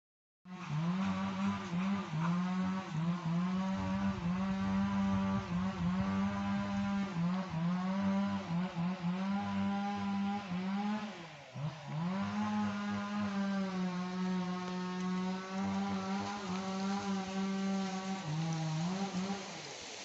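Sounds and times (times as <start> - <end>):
small engine running: 0.5 - 20.0.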